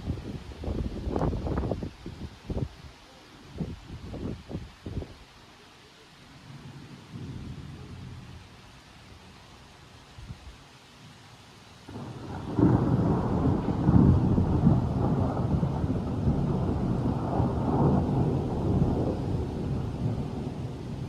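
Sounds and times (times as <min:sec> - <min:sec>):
thunder rumbling: 0:11.9 - 0:21.0.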